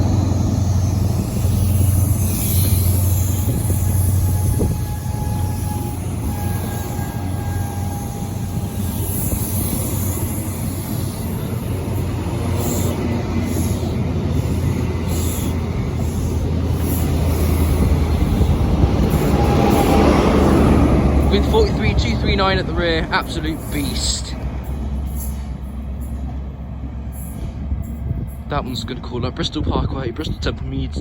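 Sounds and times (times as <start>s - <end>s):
thin high whine: 0.0s - 11.4s
diesel train running past: 0.0s - 31.0s.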